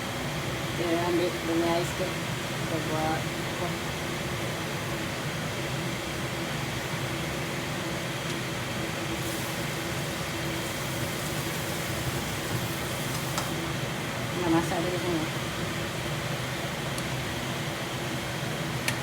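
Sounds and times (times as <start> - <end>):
exhaust fan whirring: 0.0 - 19.0.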